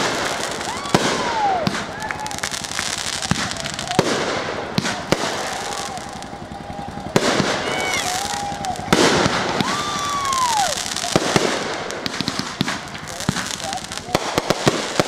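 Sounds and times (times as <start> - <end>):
firework shell bursts: 0.0 - 15.0
firework whistles: 0.0 - 15.0
fireworks crackling: 0.0 - 15.0.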